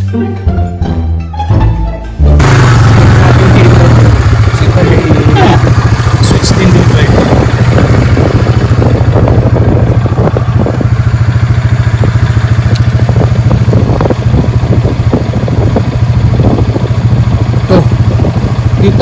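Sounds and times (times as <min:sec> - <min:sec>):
motorbike engine droning: 0:02.4 - 0:19.0
rattles: 0:02.4 - 0:19.0.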